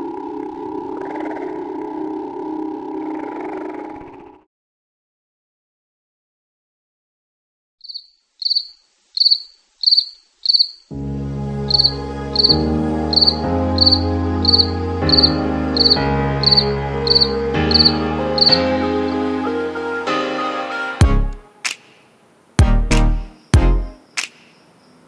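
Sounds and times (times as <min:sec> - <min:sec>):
cricket chirping: 0:07.8 - 0:10.9, 0:11.7 - 0:18.6, 0:23.3 - 0:25.0
background music: 0:10.9 - 0:21.8, 0:22.6 - 0:24.0.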